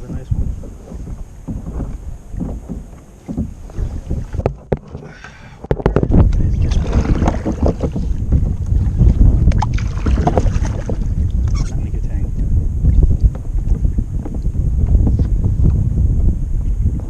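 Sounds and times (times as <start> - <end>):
sharp knocks: 0.0 - 8.5
wind buffeting microphone: 0.0 - 17.0.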